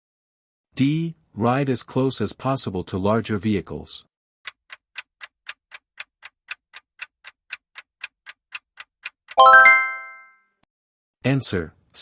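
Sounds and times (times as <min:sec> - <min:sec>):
clock ticking: 0:04.5 - 0:09.9
ringing chime: 0:09.4 - 0:10.3.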